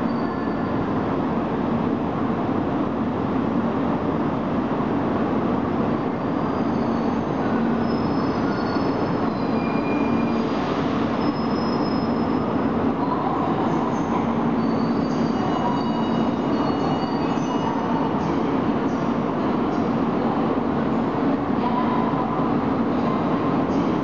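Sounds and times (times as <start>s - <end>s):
train rumbling into station: 0.0s - 24.0s
wheel and brake squeals: 6.4s - 10.5s, 11.1s - 12.5s, 14.6s - 18.0s.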